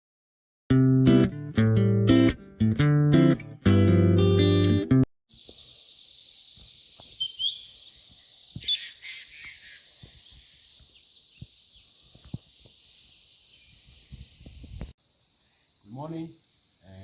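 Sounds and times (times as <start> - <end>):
birds chirping: 5.3 - 16.8
steady high hiss: 5.3 - 17.0.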